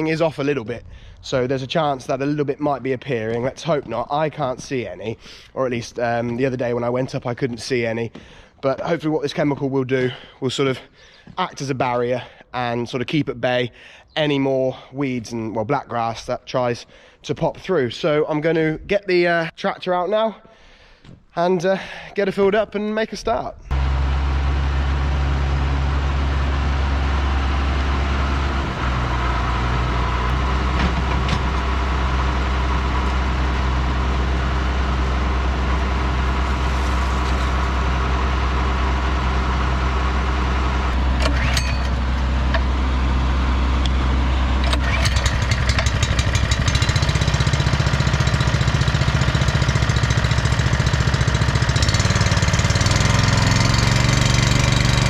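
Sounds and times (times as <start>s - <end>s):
tractor diesel engine running: 0.0s - 8.8s, 23.7s - 55.0s.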